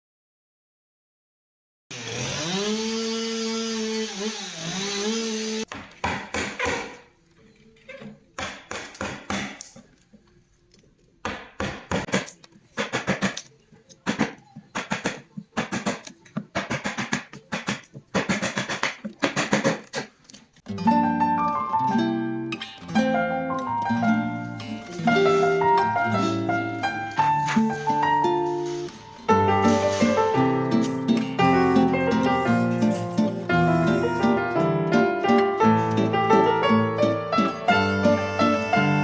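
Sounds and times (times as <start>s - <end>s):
small power tool running: 1.9s - 5.7s.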